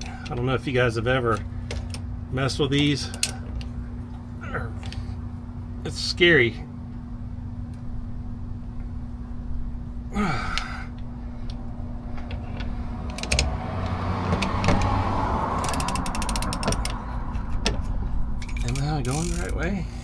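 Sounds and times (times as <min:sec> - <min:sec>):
steady low hum: 0:00.0 - 0:20.0
rapid ratchet clicks: 0:02.7 - 0:03.7, 0:13.1 - 0:14.6, 0:15.4 - 0:17.1, 0:18.4 - 0:20.0
ratchet wrench straining: 0:02.7 - 0:03.7, 0:13.0 - 0:14.6, 0:15.4 - 0:17.1, 0:17.8 - 0:20.0.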